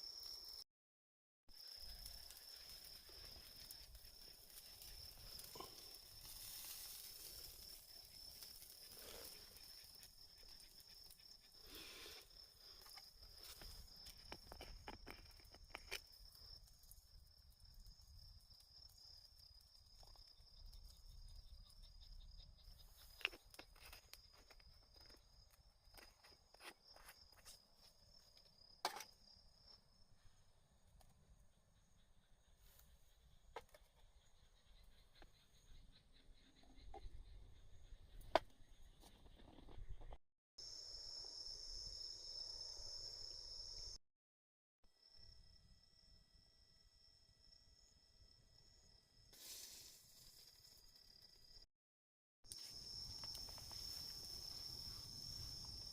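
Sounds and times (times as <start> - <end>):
crickets trilling: 1.5 - 30.1, 40.6 - 44.0, 52.5 - 55.9
insects chirring: 1.5 - 39.9, 40.6 - 44.0, 45.0 - 51.7, 52.5 - 55.9.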